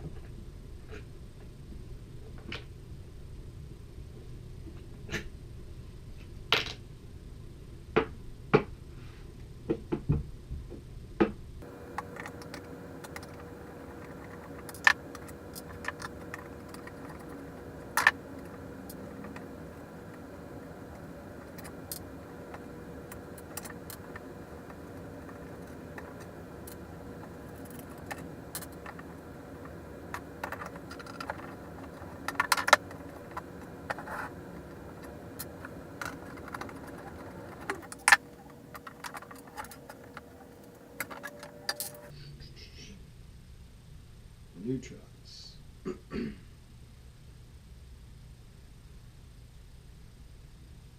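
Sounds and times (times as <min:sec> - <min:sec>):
faint steady hum: 0:00.0 - 0:50.9
metal parts clicking: 0:11.9 - 0:42.1.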